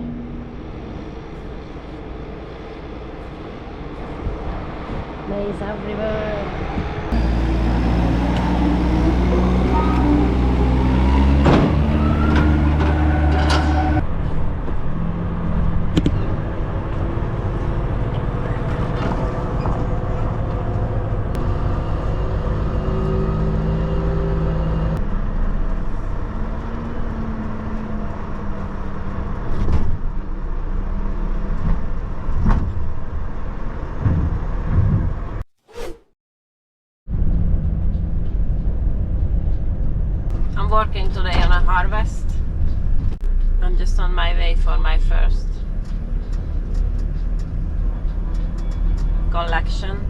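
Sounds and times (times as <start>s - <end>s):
truck diesel engine running: 7.1s - 29.4s.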